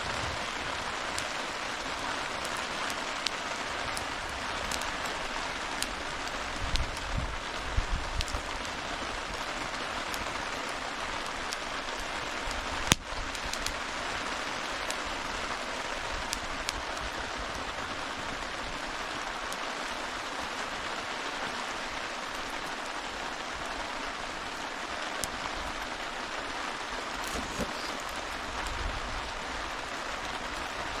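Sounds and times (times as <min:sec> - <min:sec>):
campfire crackling and popping: 0:00.0 - 0:31.0
steady rain: 0:00.0 - 0:31.0.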